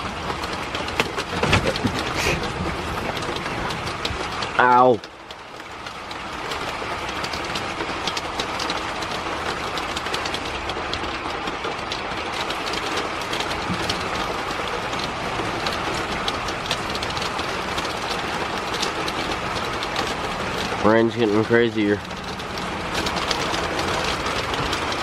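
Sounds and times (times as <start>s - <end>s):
raindrops ticking on hard surface: 0.0s - 25.0s
heavy rain hiss: 1.6s - 5.0s.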